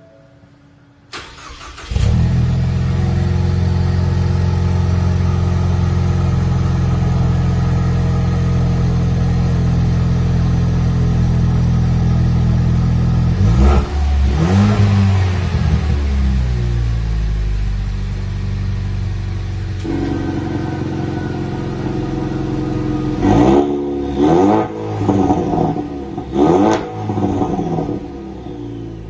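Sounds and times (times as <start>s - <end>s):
car engine starting and idling: 0.6s - 29.0s
car engine revving: 1.1s - 29.0s.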